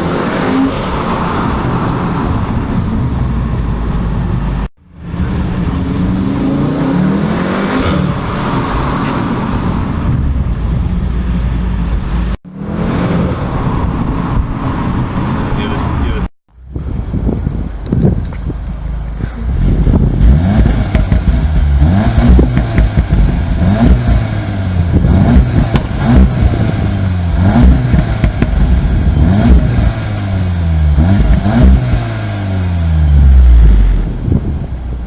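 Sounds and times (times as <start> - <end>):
car engine revving: 0.0 - 16.2, 19.4 - 34.8.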